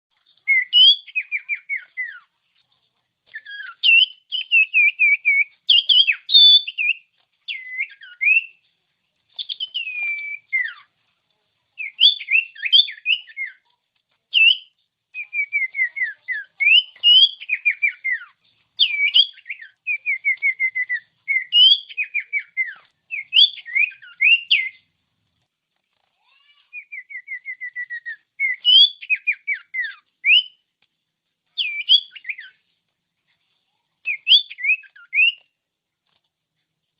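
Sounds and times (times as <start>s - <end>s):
bird singing whistled notes: 0.4s - 2.2s, 3.3s - 8.6s, 9.4s - 10.8s, 11.8s - 13.6s, 14.3s - 24.8s, 26.8s - 30.6s, 31.6s - 32.6s, 34.1s - 35.5s.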